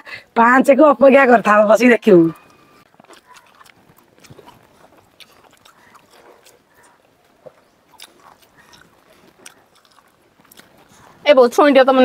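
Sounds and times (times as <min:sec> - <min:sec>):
soft chewing: 0:02.3 - 0:11.3
lip smacks: 0:02.5 - 0:11.0.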